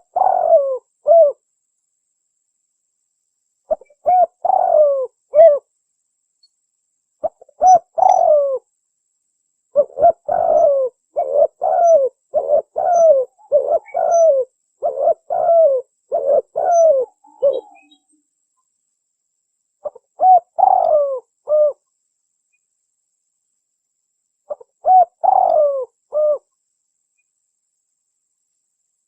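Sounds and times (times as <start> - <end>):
dove cooing: 0.0 - 1.4, 3.7 - 5.7, 7.2 - 8.7, 9.7 - 18.0, 19.8 - 21.8, 24.5 - 26.5.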